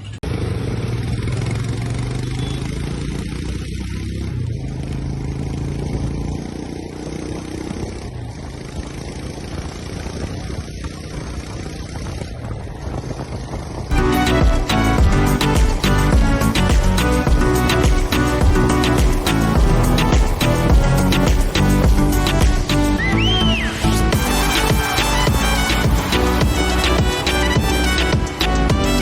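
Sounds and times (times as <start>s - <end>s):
motorcycle engine droning: 0.0s - 29.0s
music: 13.9s - 29.0s.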